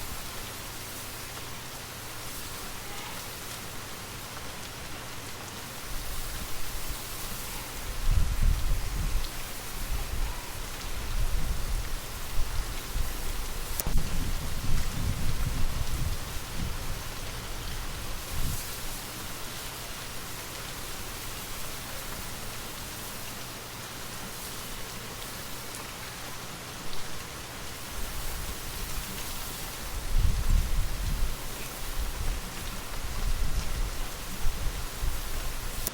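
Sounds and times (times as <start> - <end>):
gentle rain: 0.0 - 35.9
gusty wind rumble: 8.0 - 9.3, 11.0 - 18.6, 29.9 - 31.4
raindrops ticking: 10.6 - 35.9.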